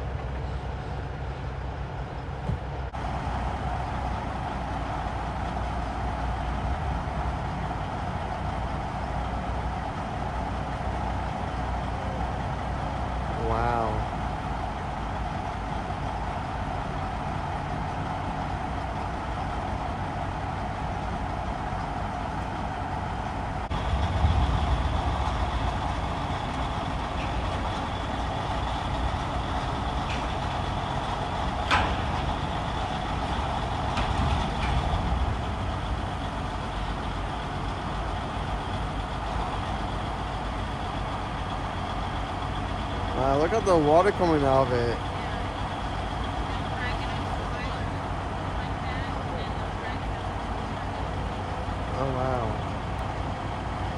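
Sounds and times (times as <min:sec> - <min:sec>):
heavy equipment engines running: 0:00.0 - 0:53.9
low rumble: 0:20.8 - 0:43.3.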